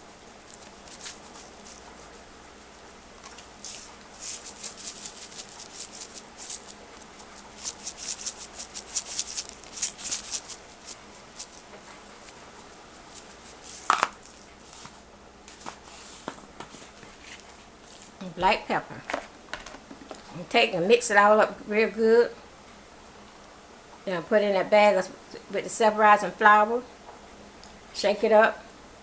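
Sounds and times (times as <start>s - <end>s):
seasoning shaker rattling: 0.0s - 15.0s.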